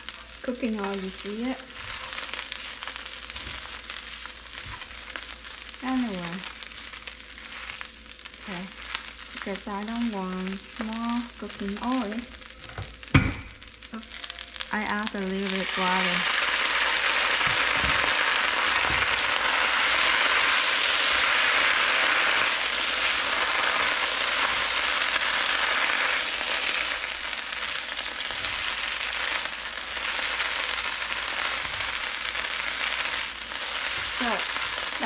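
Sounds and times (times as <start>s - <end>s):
greens sizzling in a hot pan: 0.0s - 35.0s
chopsticks tossing greens: 0.8s - 9.4s.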